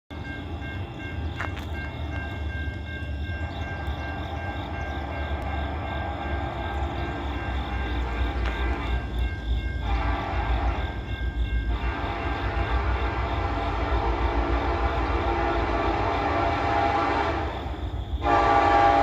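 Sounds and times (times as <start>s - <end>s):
rhythmic high ringing: 0.1s - 13.1s
freight train rumble: 0.1s - 19.0s.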